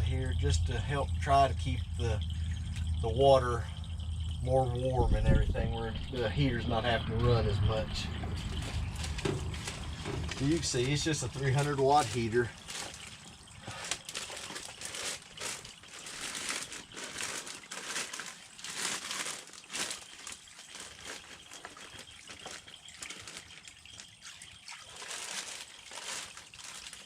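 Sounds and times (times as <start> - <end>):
water running into water bed: 0.0 - 27.0
plastic sheeting crinkling: 8.3 - 27.0.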